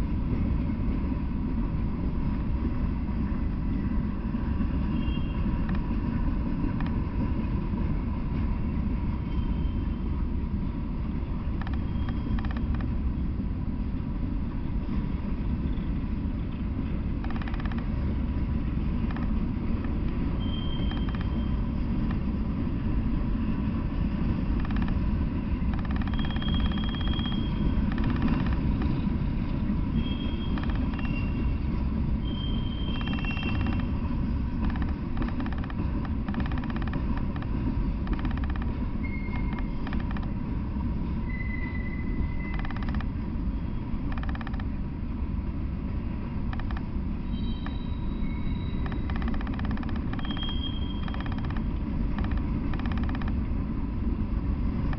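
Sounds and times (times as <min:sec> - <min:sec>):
train wheels rumbling on rail: 0:00.0 - 0:54.9
high-pitched wheel squeals: 0:04.8 - 0:06.0, 0:09.2 - 0:10.1, 0:11.6 - 0:12.8, 0:20.2 - 0:21.8, 0:25.8 - 0:29.3, 0:29.9 - 0:37.2, 0:38.0 - 0:40.2, 0:41.2 - 0:44.6, 0:46.6 - 0:51.7.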